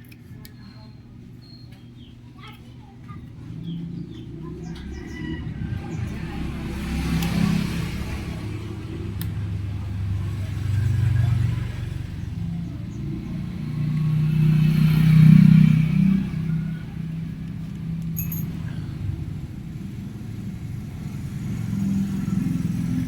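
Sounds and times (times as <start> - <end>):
vehicle engine rumble: 1.0 - 23.0.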